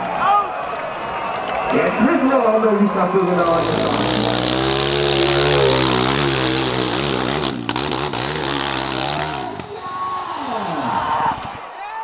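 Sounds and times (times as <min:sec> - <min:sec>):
dirt bike engine revving: 0:03.3 - 0:09.8.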